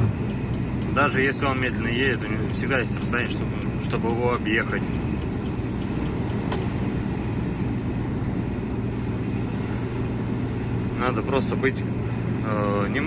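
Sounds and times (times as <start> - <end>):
road noise: 0.0 - 13.0
truck engine drone: 0.0 - 13.0.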